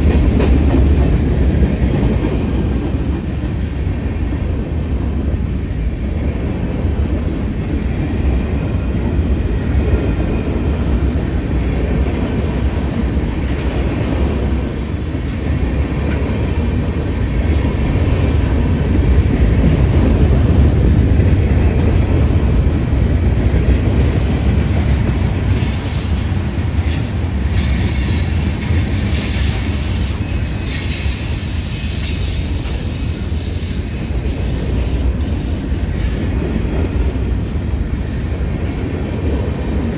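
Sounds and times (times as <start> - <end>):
train wheels rumbling and clattering: 0.0 - 39.9
wheel squeal and screech: 25.5 - 33.8.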